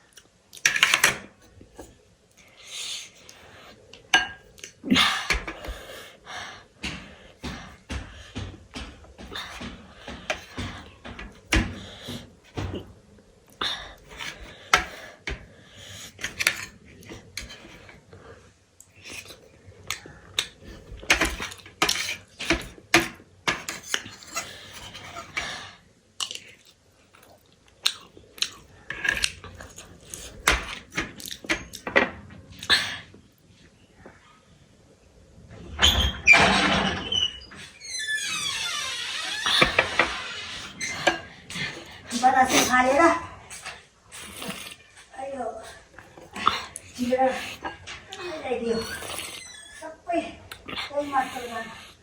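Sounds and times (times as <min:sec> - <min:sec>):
cutlery clinking on a plate: 0:04.2 - 0:04.5
chewing: 0:26.2 - 0:31.8, 0:43.5 - 0:49.9, 0:50.5 - 0:51.9.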